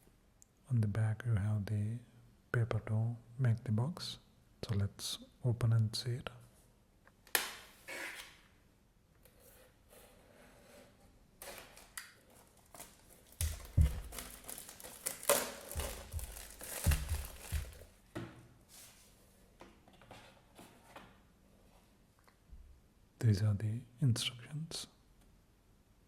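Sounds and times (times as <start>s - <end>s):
cardboard and paper crinkling: 11.5s - 17.9s.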